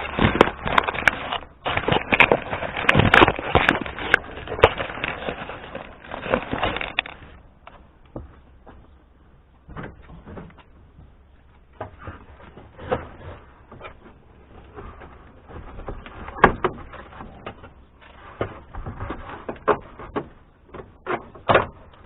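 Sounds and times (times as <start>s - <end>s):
plastic trim crackling and clicking: 0.0s - 7.4s.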